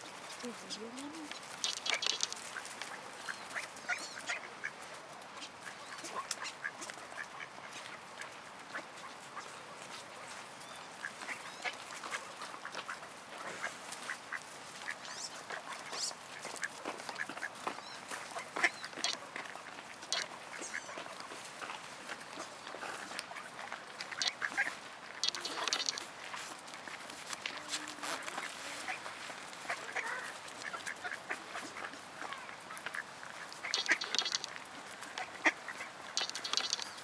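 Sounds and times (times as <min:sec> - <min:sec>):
ducks quacking: 0:00.2 - 0:10.4, 0:11.0 - 0:37.0.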